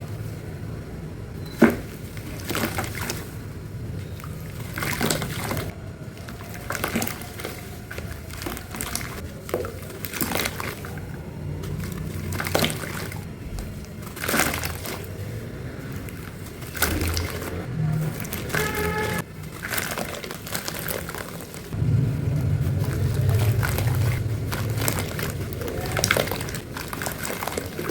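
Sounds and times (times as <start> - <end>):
water splashing and sloshing: 0.0 - 27.9
dry crumble crackling and crunching: 4.8 - 27.9.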